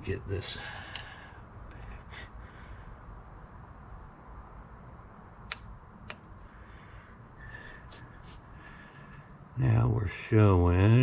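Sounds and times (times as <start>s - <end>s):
belt tension gauge clicks: 5.5s - 6.2s.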